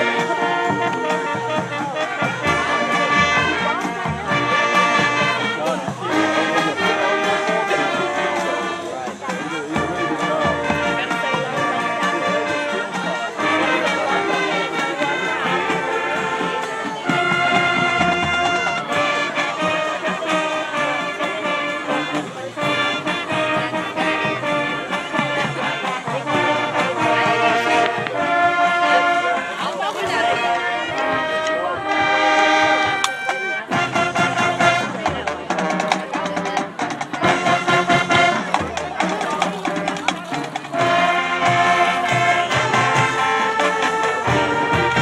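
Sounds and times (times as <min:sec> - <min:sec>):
brass holding melody notes: 0:00.0 - 0:45.0
marching band playing rock: 0:00.0 - 0:45.0.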